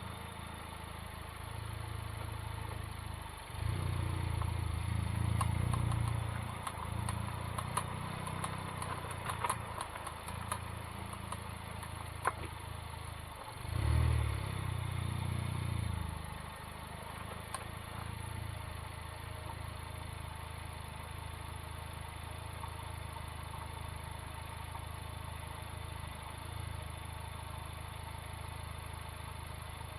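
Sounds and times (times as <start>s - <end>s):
car engine running: 0.0s - 29.9s
sharp clicks from wheel: 4.1s - 13.6s, 17.0s - 18.4s.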